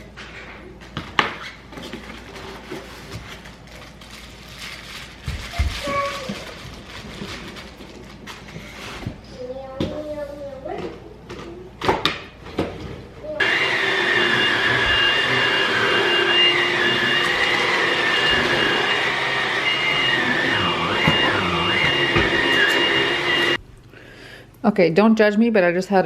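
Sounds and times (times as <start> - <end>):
vacuum cleaner motor whining: 13.4 - 23.6.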